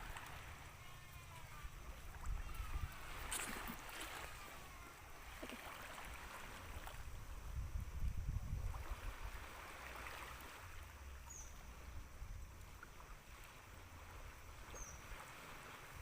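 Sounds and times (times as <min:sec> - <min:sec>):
water washing at shore: 0:00.0 - 0:07.5, 0:08.5 - 0:16.0
wind rumbling on microphone: 0:01.5 - 0:04.6, 0:06.0 - 0:10.8.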